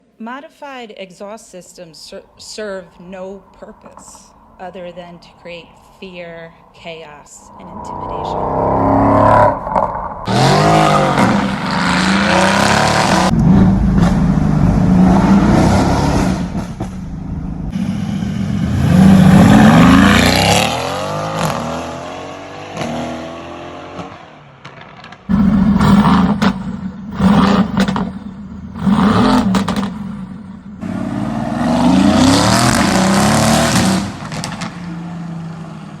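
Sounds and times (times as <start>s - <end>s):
cars with loud exhausts revving: 7.4s - 36.0s.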